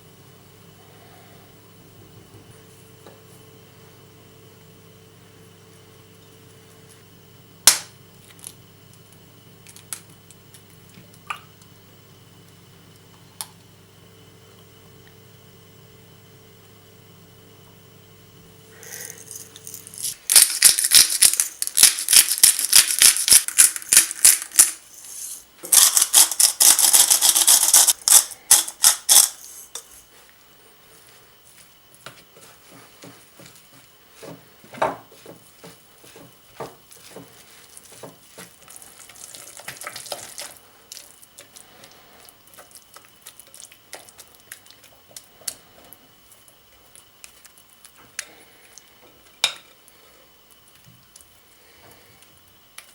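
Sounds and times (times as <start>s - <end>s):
utensils clicking and scraping: 18.8s - 30.0s.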